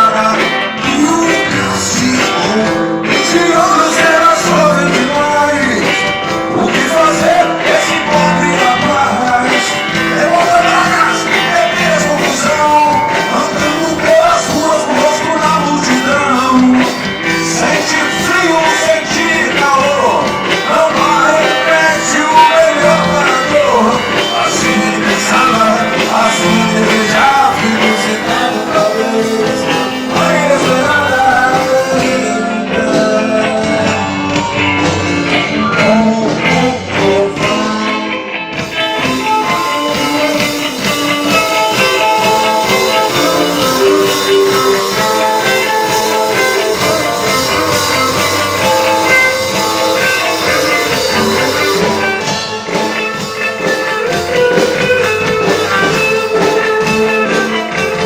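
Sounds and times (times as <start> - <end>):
electric guitar: 0.0 - 58.0
person singing: 0.0 - 58.0
rock band playing: 0.0 - 58.0.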